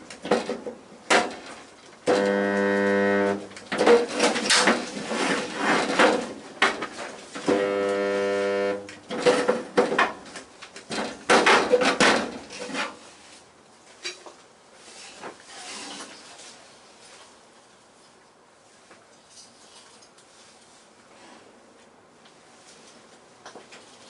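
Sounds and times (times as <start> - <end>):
steady buzz: 2.0 - 3.9, 7.4 - 9.2
sheet metal clattering and knocking: 10.9 - 12.5.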